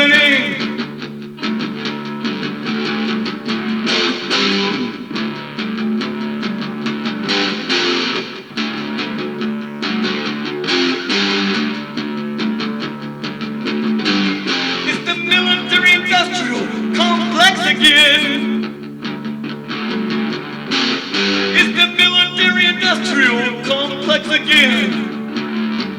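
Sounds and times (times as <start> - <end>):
rock band instrumental: 0.0 - 25.9.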